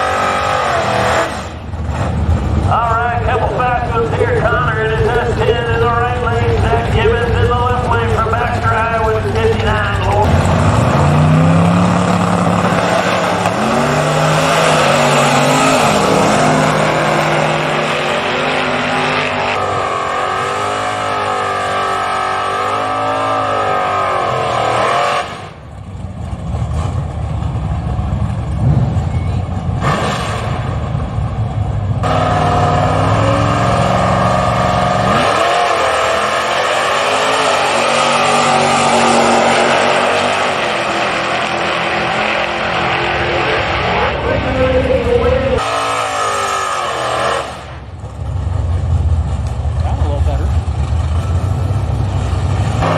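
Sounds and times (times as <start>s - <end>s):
drag racing engines revving: 0.0s - 52.9s.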